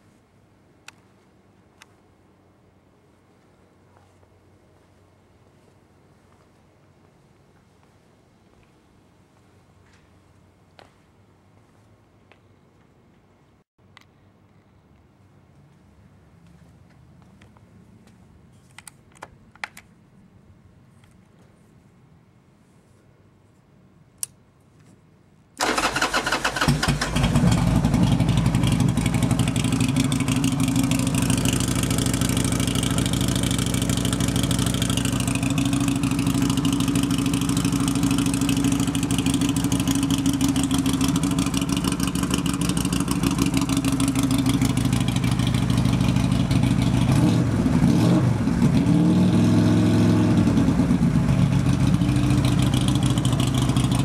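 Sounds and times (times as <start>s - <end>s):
click: 24.2s - 24.4s
motorcycle engine starting and idling: 25.6s - 54.0s.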